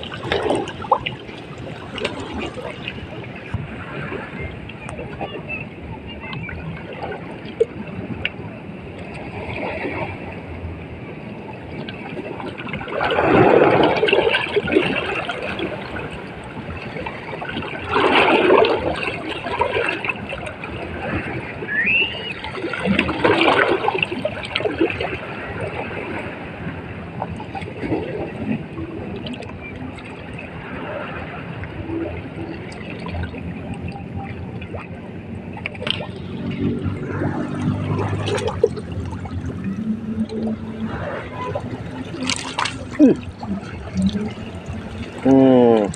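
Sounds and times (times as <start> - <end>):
small waves washing ashore: 0.0 - 45.9.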